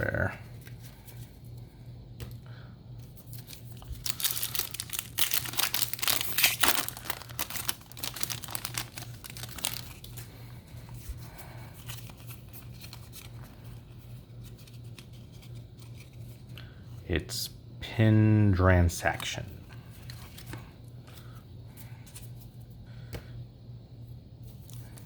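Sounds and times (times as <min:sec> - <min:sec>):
cards rustling: 0:03.0 - 0:16.6, 0:19.0 - 0:22.6
foil wrapper tearing and crinkling: 0:03.3 - 0:10.2.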